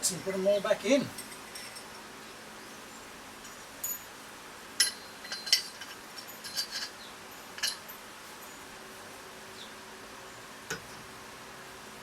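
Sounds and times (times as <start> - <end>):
metal parts clinking: 4.8 - 8.0.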